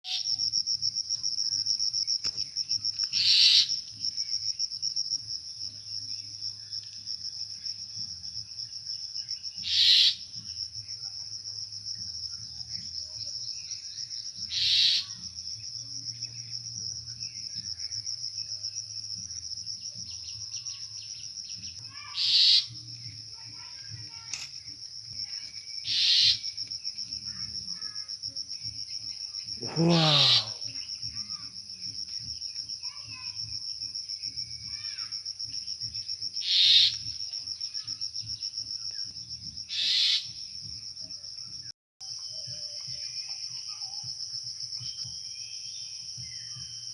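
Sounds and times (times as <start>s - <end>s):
high-pitched insect trill: 0.0s - 46.9s
harsh bird calls: 9.6s - 10.2s, 22.1s - 22.7s, 25.9s - 26.4s, 29.6s - 30.6s.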